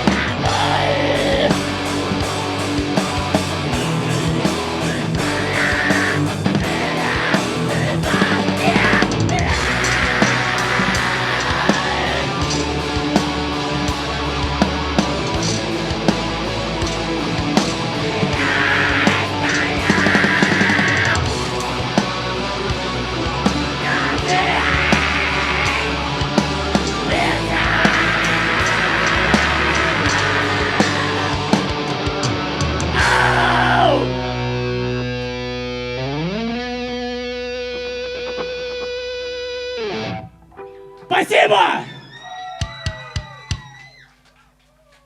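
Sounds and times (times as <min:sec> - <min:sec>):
person screaming vocals: 0:00.0 - 0:01.6, 0:05.0 - 0:12.4, 0:18.2 - 0:21.3, 0:23.8 - 0:26.0, 0:27.0 - 0:31.5, 0:32.9 - 0:34.3, 0:41.1 - 0:44.1
drums: 0:00.0 - 0:40.4, 0:41.0 - 0:45.0
bass guitar: 0:00.0 - 0:43.6
distorted guitars: 0:00.0 - 0:43.8.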